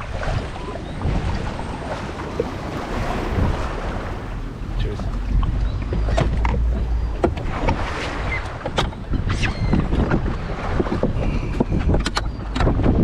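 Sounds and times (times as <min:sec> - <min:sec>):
wind buffeting microphone: 0:00.0 - 0:13.0
short knocks and clicks: 0:05.0 - 0:07.8.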